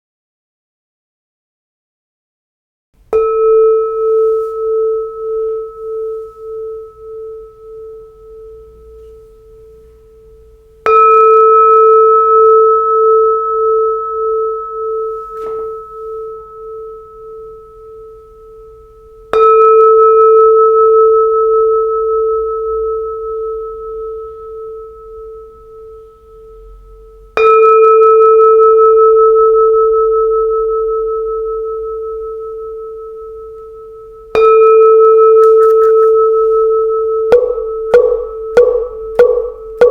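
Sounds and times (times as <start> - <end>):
bowl bell ringing: 3.1 - 39.9.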